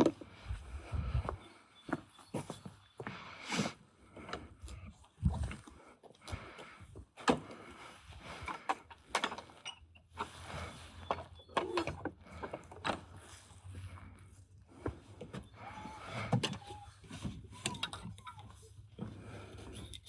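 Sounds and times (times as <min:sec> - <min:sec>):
tools clicking and knocking: 0:19.6 - 0:20.0.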